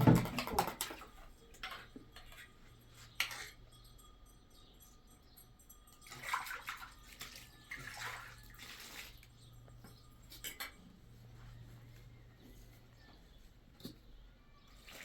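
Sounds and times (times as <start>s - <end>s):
water splashing and sloshing: 5.9s - 10.8s.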